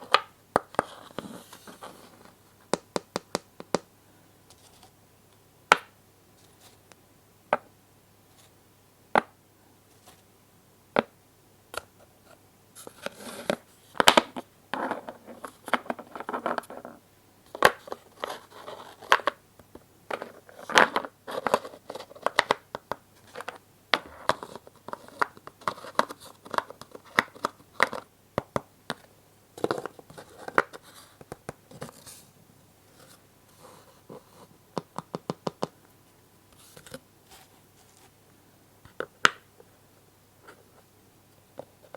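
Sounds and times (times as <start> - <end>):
rustling and scraping: 0.8 - 2.6, 4.5 - 5.0, 6.4 - 6.8, 9.9 - 10.3, 12.2 - 19.3, 29.6 - 34.6, 36.5 - 38.2.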